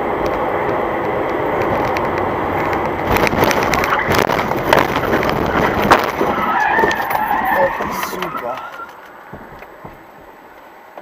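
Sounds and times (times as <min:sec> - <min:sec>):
car road and wind noise: 0:00.0 - 0:11.0
sharp knocks: 0:08.8 - 0:10.4.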